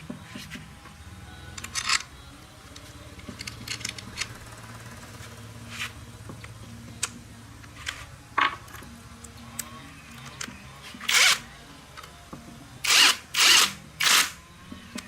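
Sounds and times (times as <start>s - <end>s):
low steady hum: 0.0s - 15.0s
tools and parts clicking and knocking: 1.6s - 2.1s, 2.8s - 4.4s, 6.4s - 11.4s.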